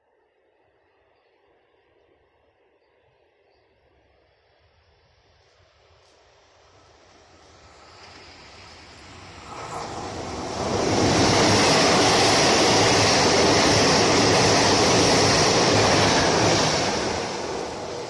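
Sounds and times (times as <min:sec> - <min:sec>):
passenger train passing: 0:05.1 - 0:18.0.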